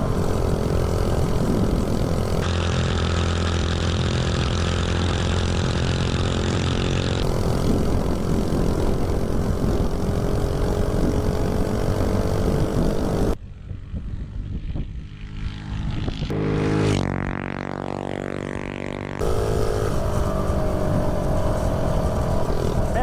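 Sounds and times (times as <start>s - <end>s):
wind rushing over microphone: 0.0s - 2.5s, 7.2s - 16.3s, 19.2s - 23.0s
mini bike engine running hard: 0.0s - 13.4s, 15.6s - 23.0s.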